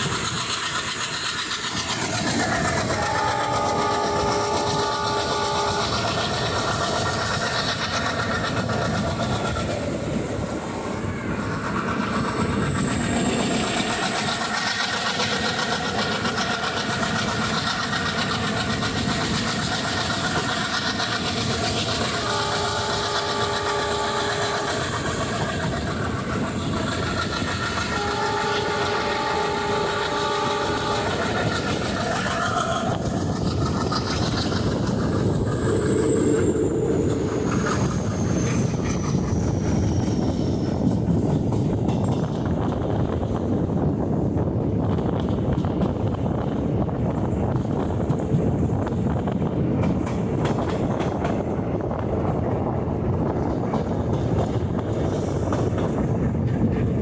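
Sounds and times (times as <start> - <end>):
train rumble and wheel clatter: 0.0 - 57.0
multi-tone train horn: 2.7 - 6.6, 22.0 - 25.4, 27.8 - 33.0.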